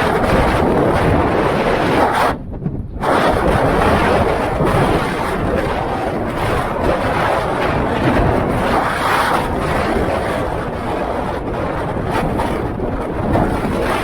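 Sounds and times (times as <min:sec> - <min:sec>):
blizzard wind buffeting microphone: 0:00.0 - 0:14.0.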